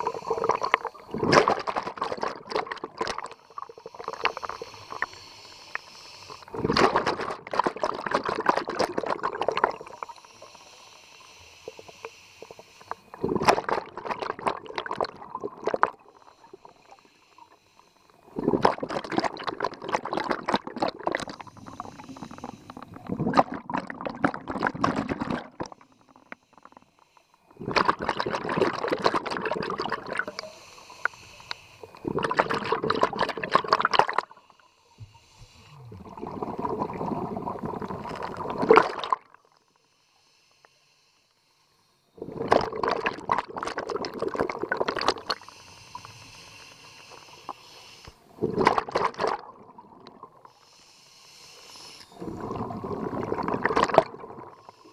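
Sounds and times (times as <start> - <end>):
regulator inhale hiss: 0.0 - 1.1, 3.2 - 6.6, 9.7 - 13.3, 16.0 - 18.3, 21.2 - 23.1, 25.6 - 27.6, 30.2 - 32.1, 34.2 - 36.1, 39.5 - 42.2, 45.2 - 48.4, 50.4 - 52.4, 54.5 - 54.9
exhaled bubbles rushing: 0.0 - 5.0, 6.5 - 10.1, 13.1 - 16.0, 18.3 - 25.8, 27.6 - 30.4, 32.0 - 34.3, 35.6 - 39.4, 42.2 - 45.4, 48.4 - 50.5, 52.1 - 54.7.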